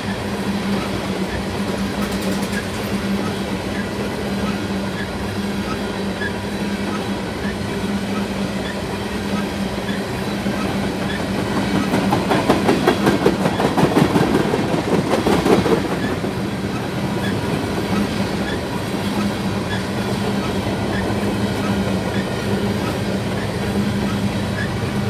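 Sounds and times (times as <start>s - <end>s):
freight train cars rumbling past: 0.0s - 25.0s.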